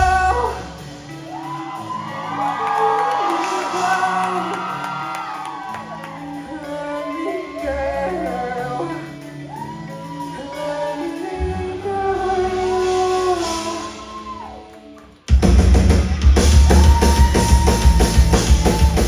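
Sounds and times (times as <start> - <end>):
woman singing: 6.4 - 9.1, 10.2 - 14.2.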